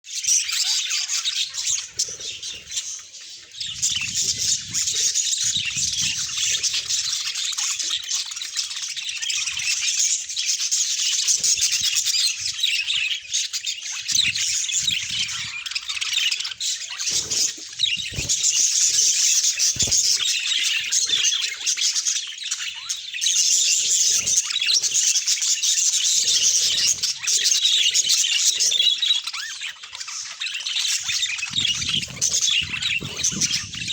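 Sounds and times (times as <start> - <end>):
budgerigars chirping and warbling: 0.1 - 33.9
soft knocks and wing flutters: 17.0 - 20.3, 31.0 - 33.9.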